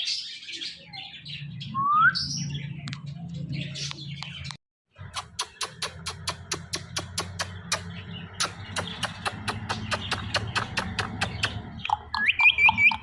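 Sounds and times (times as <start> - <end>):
parakeet chirping: 5.2 - 13.0
sharp clicks: 5.2 - 13.0.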